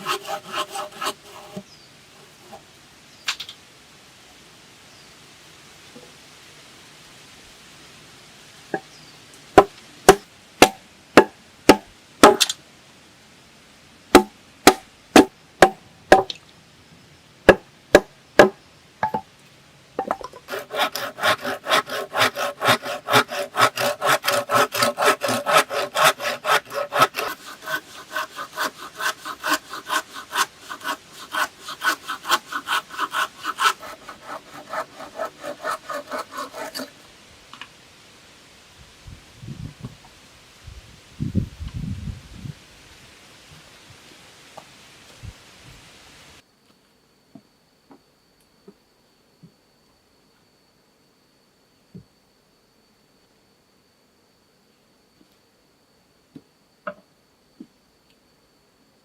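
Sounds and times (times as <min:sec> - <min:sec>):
hand saw sawing wood: 0:00.0 - 0:01.6, 0:20.4 - 0:37.0
sharp knocks on wood: 0:14.2 - 0:16.4.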